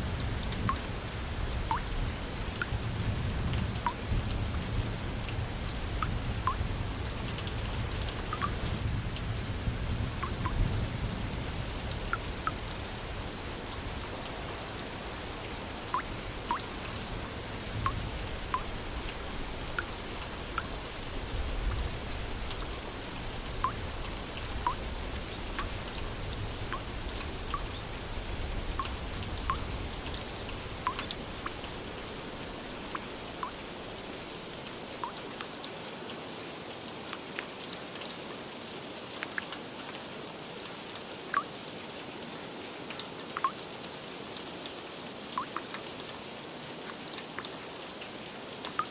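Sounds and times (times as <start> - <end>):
steady rain hiss: 0.0 - 48.9
raindrops plinking: 1.6 - 2.8, 5.9 - 6.7, 7.3 - 8.8, 10.1 - 10.7, 15.5 - 32.0, 32.6 - 33.6, 35.0 - 35.3, 41.3 - 41.5, 43.3 - 43.6, 45.4 - 45.8, 48.7 - 48.9.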